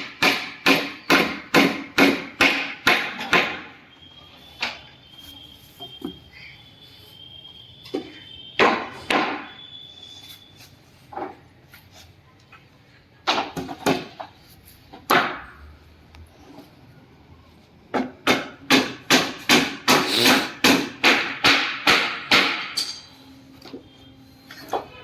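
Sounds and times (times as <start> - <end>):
hammer blows on wood: 18.4 - 22.8.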